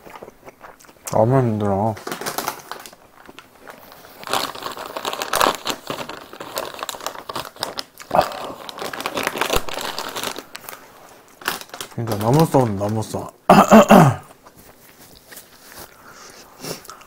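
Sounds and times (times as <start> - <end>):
close chewing with wet crackling: 0.0 - 1.9, 3.0 - 4.1.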